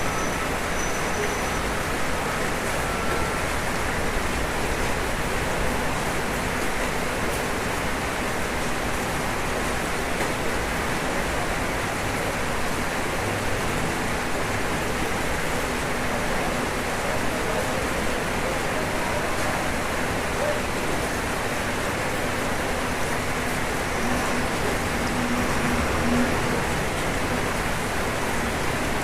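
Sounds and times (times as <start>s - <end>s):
rain falling on a roof: 0.0s - 29.0s.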